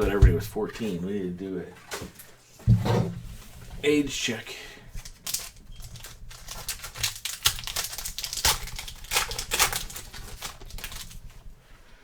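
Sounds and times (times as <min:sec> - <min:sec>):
plastic wrapper tearing and crinkling: 0:04.9 - 0:11.5.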